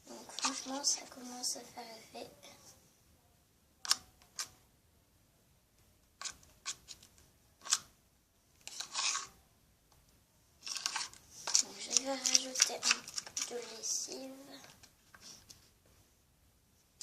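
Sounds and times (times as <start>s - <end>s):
spoon scraping slime in a bowl: 8.7s - 9.4s, 10.7s - 14.0s.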